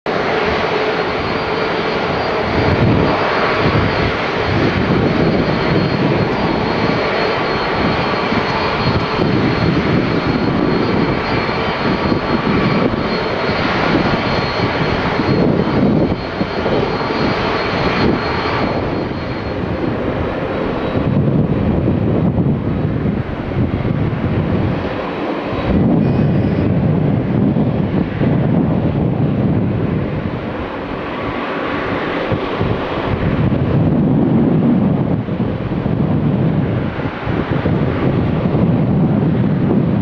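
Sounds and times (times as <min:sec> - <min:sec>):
jet engines roaring: 0:00.1 - 0:40.0
faint high whine: 0:00.2 - 0:27.7.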